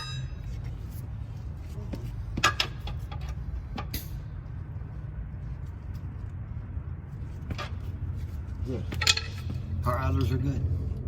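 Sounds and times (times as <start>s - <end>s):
metal knocks from idler wheels: 0.0s - 0.7s, 1.9s - 4.3s, 7.4s - 8.0s, 8.8s - 10.4s.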